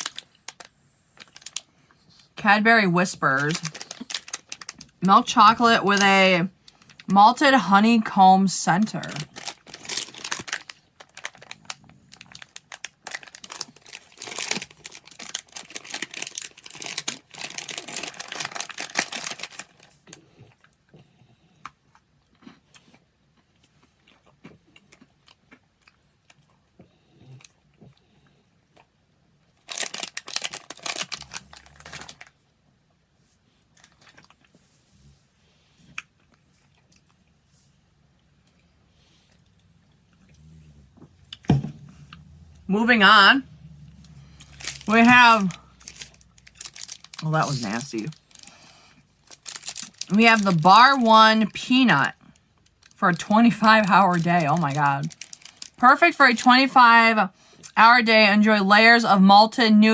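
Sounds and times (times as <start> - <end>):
plastic wrapper crinkling: 0.0 - 8.1, 8.8 - 20.2, 29.6 - 32.4, 33.7 - 34.6, 41.0 - 56.7.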